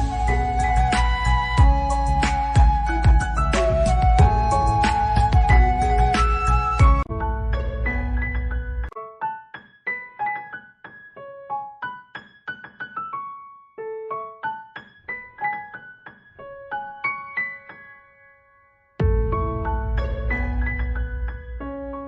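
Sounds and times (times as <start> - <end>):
fuller music with deep bass: 0.0 - 8.7
light piano-like melody: 0.0 - 22.0.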